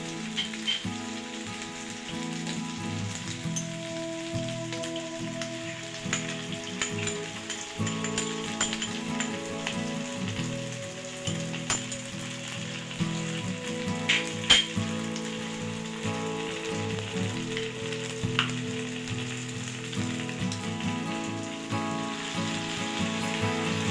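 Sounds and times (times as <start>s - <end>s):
food sizzling in a pan: 0.0s - 23.9s
utensil clinking against pan: 6.1s - 9.8s, 14.1s - 14.8s.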